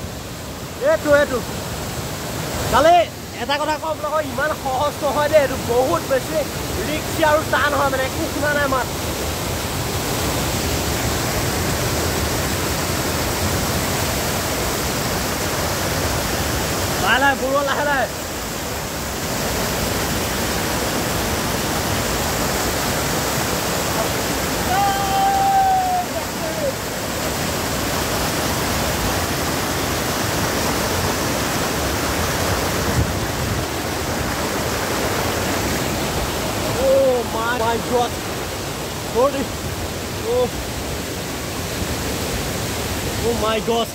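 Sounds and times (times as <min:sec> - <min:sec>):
waterfall roaring: 0:00.0 - 0:43.9.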